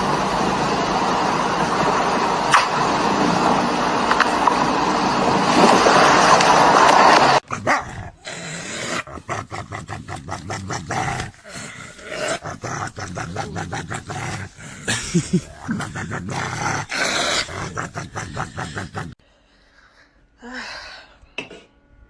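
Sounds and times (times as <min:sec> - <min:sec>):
dog growling: 0:07.4 - 0:19.2
dog barking: 0:07.5 - 0:08.0.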